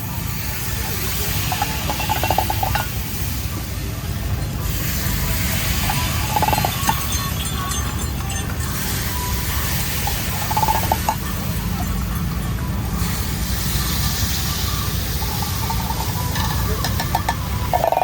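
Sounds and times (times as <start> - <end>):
metal utensils clinking and scraping: 1.2 - 3.0, 5.0 - 12.5, 15.2 - 18.0.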